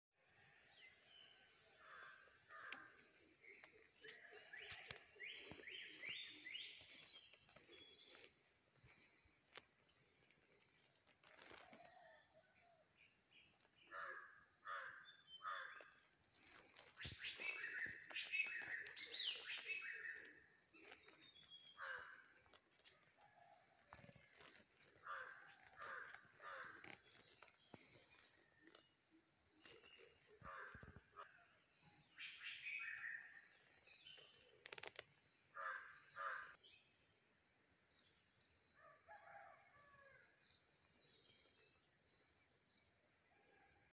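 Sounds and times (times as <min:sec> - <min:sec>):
bird calls: 0:13.8 - 0:22.6, 0:29.5 - 0:35.0
birds chirping and calling: 0:16.8 - 0:22.2.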